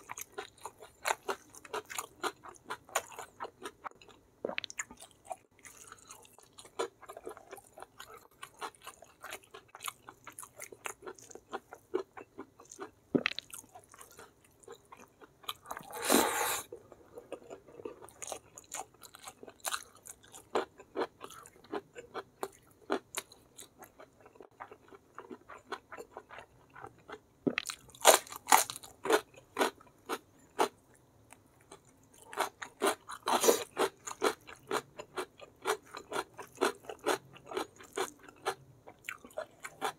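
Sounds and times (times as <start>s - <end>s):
wet chewing and gnawing: 0.0s - 16.1s.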